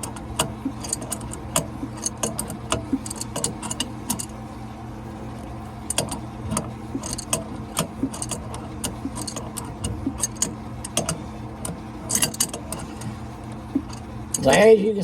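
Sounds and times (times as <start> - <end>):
wrench clicking on bolt: 0.0 - 4.3, 5.9 - 13.1
low hum: 0.0 - 15.0.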